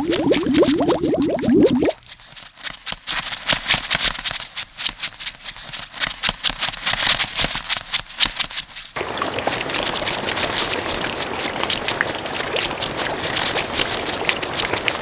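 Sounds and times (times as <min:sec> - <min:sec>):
quick bubbling: 0:00.0 - 0:02.2.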